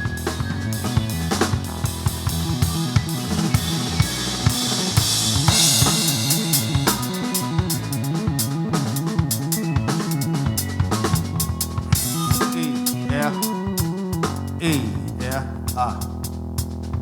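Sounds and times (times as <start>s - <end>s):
bass line: 0.0s - 17.0s
drum kit groove: 0.0s - 17.0s
cymbal wash: 2.6s - 9.0s.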